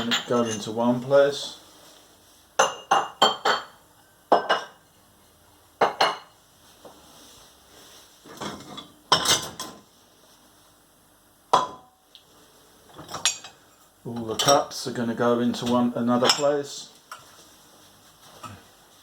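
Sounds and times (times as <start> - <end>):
dishes clattering: 0.0 - 0.7, 2.6 - 4.8, 8.3 - 9.8, 13.0 - 13.6
dishes and glasses clinking: 0.0 - 0.8, 2.6 - 4.8, 5.8 - 6.4, 8.3 - 9.8, 11.6 - 11.9, 13.0 - 14.7, 16.2 - 17.3.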